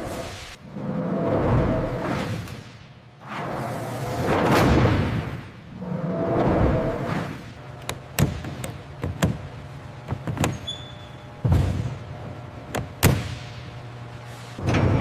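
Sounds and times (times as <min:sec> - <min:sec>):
low steady hum: 0:03.1 - 0:15.0.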